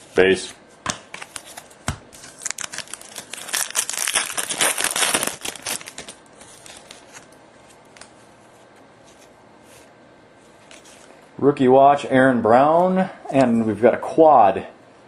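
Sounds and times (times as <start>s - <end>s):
foil wrapper tearing and crinkling: 1.2s - 7.3s.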